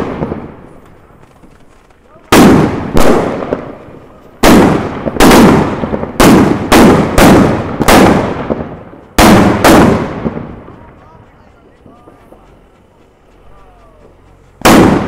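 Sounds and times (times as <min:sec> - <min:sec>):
firework bangs with echo: 0:00.0 - 0:00.9, 0:02.1 - 0:11.0, 0:14.6 - 0:15.0.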